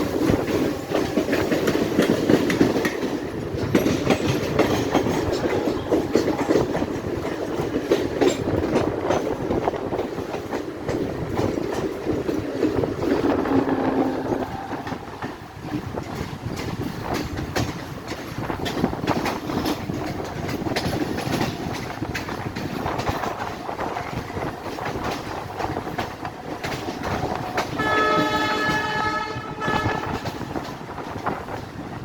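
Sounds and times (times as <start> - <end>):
train wheels clattering over rails: 0.0 - 32.0
train horn blowing: 13.0 - 15.7, 27.7 - 30.6.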